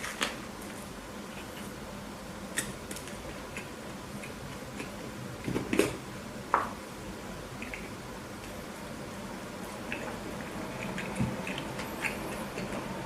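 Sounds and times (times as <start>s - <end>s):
steady low hum: 0.0s - 13.0s
mouth clicks and chewing: 9.7s - 12.9s.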